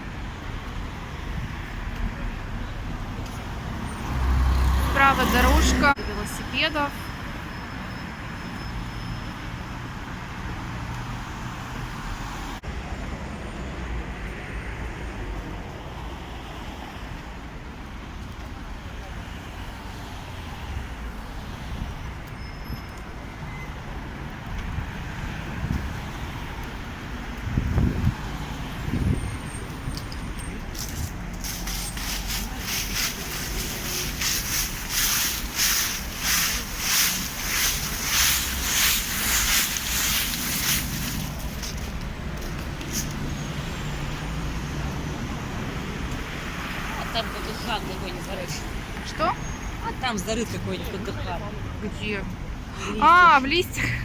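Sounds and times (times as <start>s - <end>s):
passing cars road traffic: 0.0s - 54.0s
footsteps crunching dry leaves: 30.6s - 43.0s
tyre hiss: 31.4s - 41.7s.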